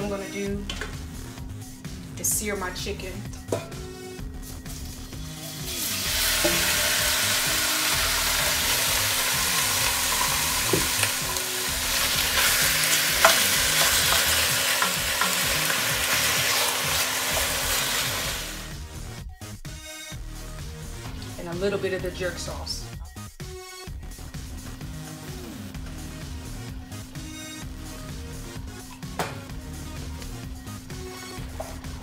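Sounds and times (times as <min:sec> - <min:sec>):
chicken sizzling in hot oil: 0:05.4 - 0:18.8.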